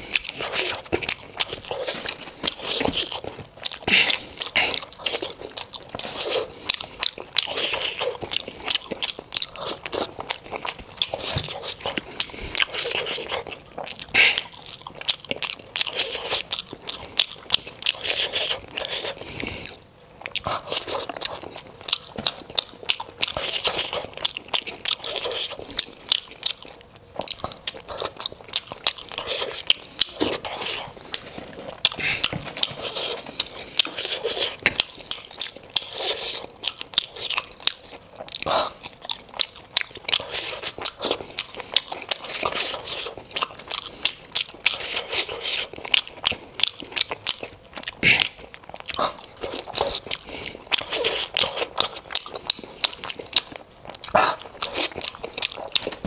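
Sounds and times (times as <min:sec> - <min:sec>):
wet chewing and biting: 0:00.0 - 0:56.0.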